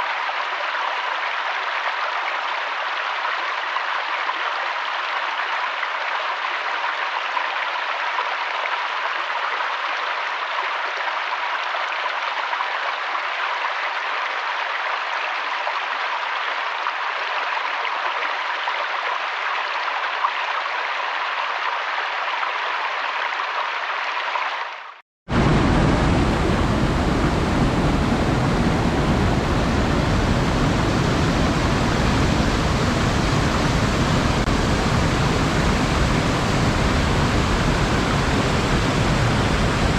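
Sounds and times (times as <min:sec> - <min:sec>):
running water rushing: 0:24.2 - 0:39.9
deeper water rush: 0:25.3 - 0:39.9.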